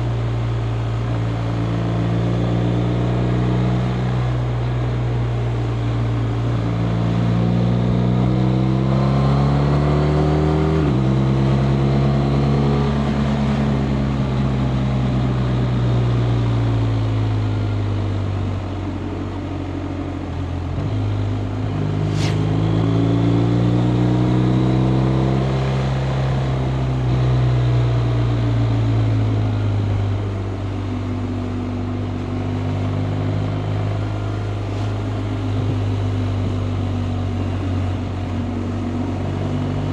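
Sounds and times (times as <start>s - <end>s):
wind rushing: 21.8s - 22.9s.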